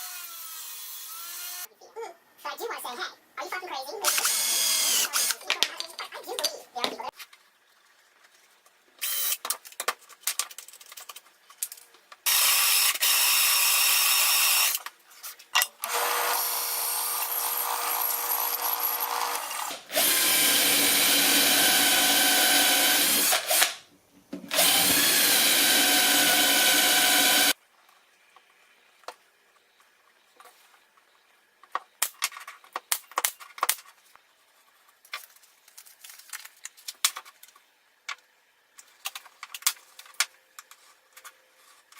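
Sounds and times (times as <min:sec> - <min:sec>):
power tool motor whine: 0:04.1 - 0:05.3, 0:15.8 - 0:23.7, 0:24.5 - 0:27.6.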